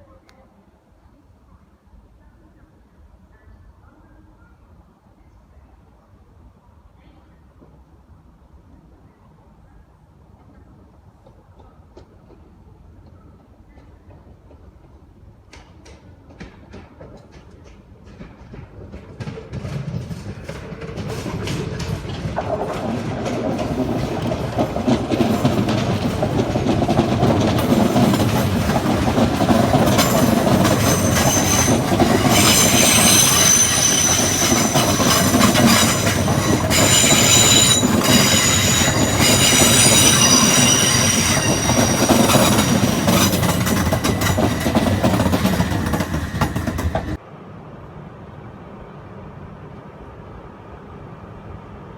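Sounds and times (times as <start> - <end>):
train wheels rumbling on track: 10.3 - 47.2
high wheel squeal: 27.6 - 47.2.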